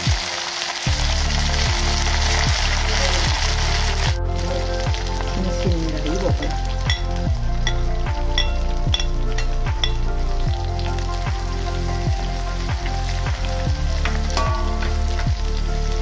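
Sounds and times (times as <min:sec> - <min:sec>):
food sizzling in oil: 0:00.0 - 0:16.0
music with slow deep beat: 0:00.0 - 0:16.0
ladle clinking against pan: 0:14.1 - 0:15.0.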